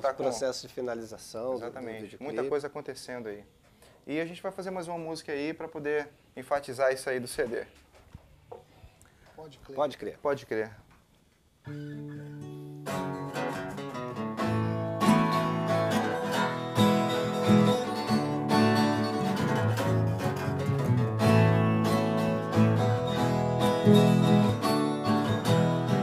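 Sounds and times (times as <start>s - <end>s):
strummed acoustic guitar: 11.7s - 26.0s.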